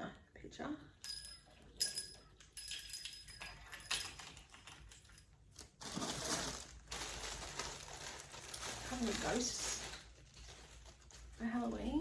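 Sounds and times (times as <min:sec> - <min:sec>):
light jangling and rattling: 0:01.0 - 0:05.4
packaging rustling: 0:04.2 - 0:11.7.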